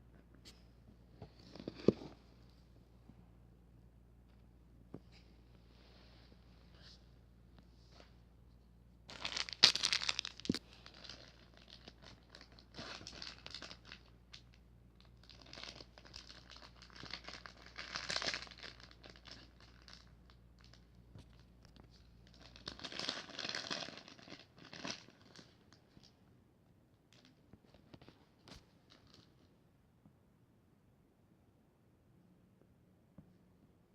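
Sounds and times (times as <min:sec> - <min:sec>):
packaging wrap crinkling and tearing: 0:09.1 - 0:20.8, 0:22.2 - 0:26.1.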